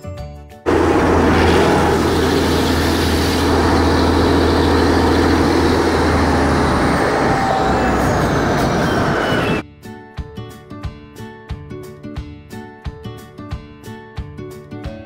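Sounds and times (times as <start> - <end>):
faint high whine: 0.7 - 9.6
train rumbling on track: 0.7 - 9.6.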